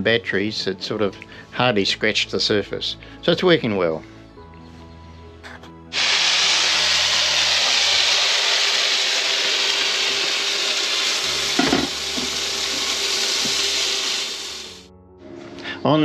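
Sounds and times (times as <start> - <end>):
food sizzling in a frying pan: 6.0 - 14.9
utensil knocking against pan: 11.6 - 12.3.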